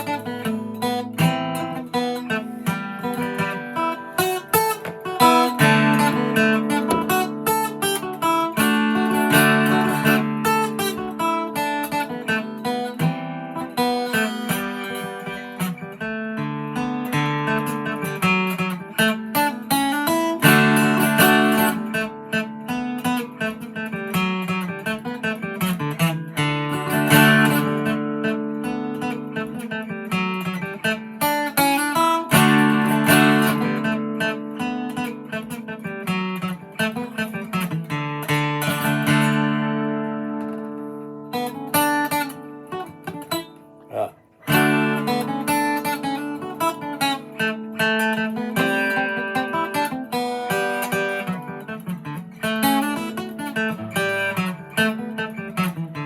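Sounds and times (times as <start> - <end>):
acoustic guitar fiddle tune: 0.0 - 56.0.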